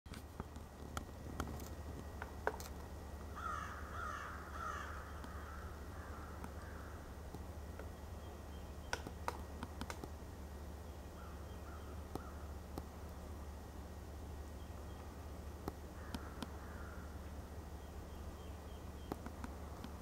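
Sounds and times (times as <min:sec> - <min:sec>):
low background hum: 0:00.1 - 0:20.0
harsh bird calls: 0:03.3 - 0:07.2, 0:10.8 - 0:12.6, 0:15.9 - 0:19.4.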